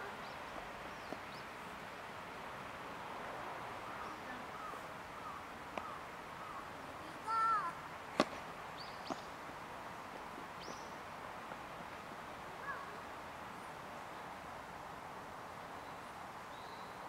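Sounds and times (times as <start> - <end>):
birds chirping: 0.0 - 2.5, 3.7 - 7.7, 8.7 - 9.4, 10.5 - 11.1
faint background hiss: 0.0 - 17.0.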